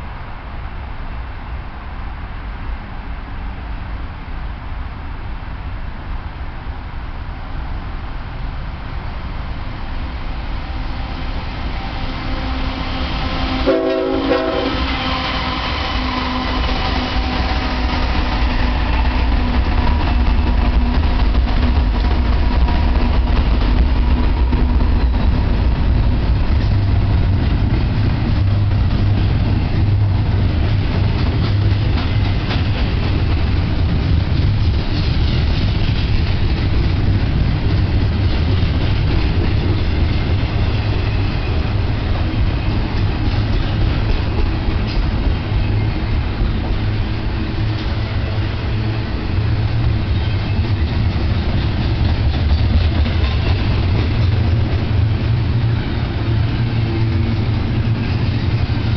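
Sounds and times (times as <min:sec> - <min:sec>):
freight train rumbling past: 0:00.0 - 0:58.9
locomotive horn blast: 0:12.2 - 0:17.1.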